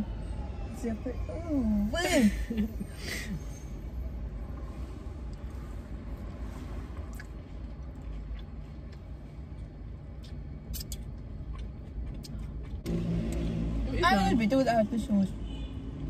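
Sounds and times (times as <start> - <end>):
low rumble inside a car: 0.0 - 16.0
quiet chewing: 7.0 - 12.9
mouth clicks: 10.2 - 12.8.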